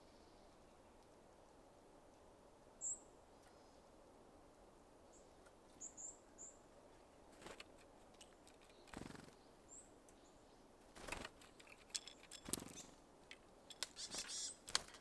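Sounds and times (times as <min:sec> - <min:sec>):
small birds chirping: 0:02.8 - 0:03.9, 0:05.1 - 0:13.1, 0:13.7 - 0:15.0
fluttering wingbeats: 0:07.4 - 0:07.8, 0:08.6 - 0:09.4, 0:11.0 - 0:13.0, 0:13.8 - 0:15.0.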